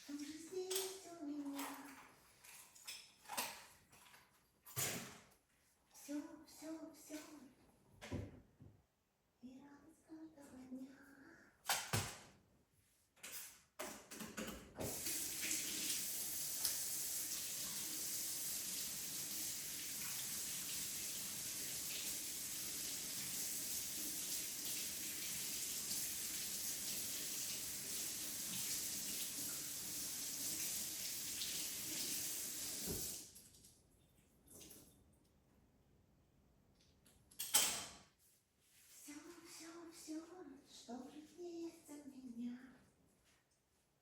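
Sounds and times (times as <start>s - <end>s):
water running from a tap: 14.8s - 33.4s.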